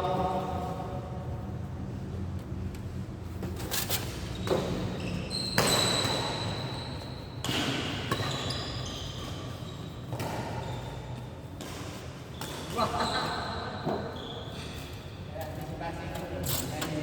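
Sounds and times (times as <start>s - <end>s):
rackets hitting shuttlecock: 5.4s - 6.6s.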